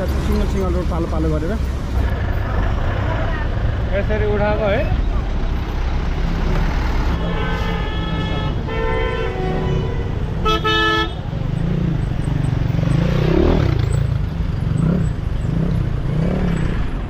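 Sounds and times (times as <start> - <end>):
traffic engines rumbling: 0.0 - 17.0
vehicle horns honking: 7.1 - 11.3.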